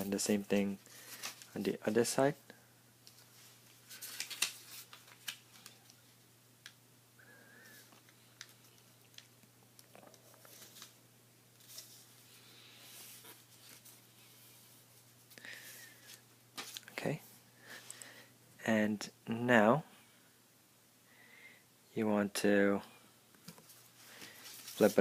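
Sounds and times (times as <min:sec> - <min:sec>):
paper rustling and crackling: 0:00.9 - 0:01.7, 0:03.1 - 0:06.0, 0:23.5 - 0:25.0.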